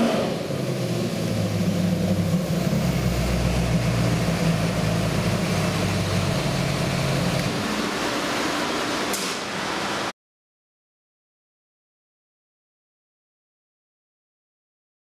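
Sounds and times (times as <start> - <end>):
engine running low note: 0.0 - 10.1.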